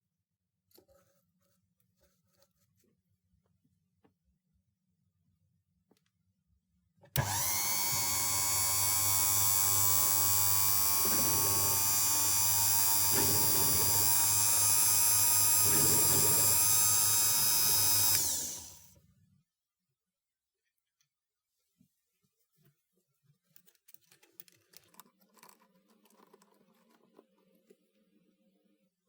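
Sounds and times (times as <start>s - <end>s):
lathe motor whining: 7.2s - 18.9s.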